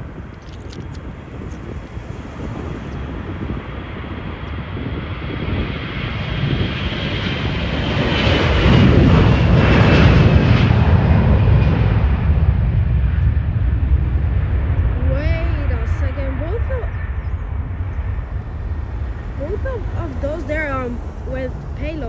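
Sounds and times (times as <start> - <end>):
jet engines whining and rumbling: 0.0 - 22.0.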